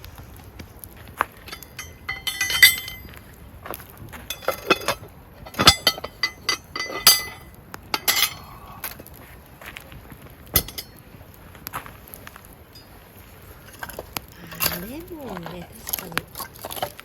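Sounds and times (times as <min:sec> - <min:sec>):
dishes and utensils clinking: 0:01.5 - 0:03.1, 0:04.3 - 0:08.6, 0:10.6 - 0:11.0.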